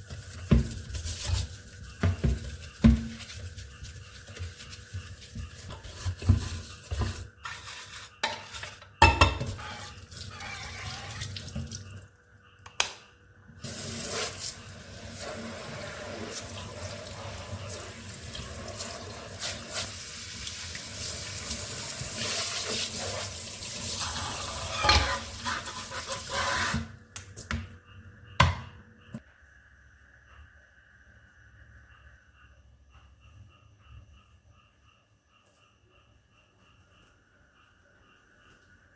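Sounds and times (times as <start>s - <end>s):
dishes clinking in sink: 5.6s - 11.8s, 24.0s - 25.6s.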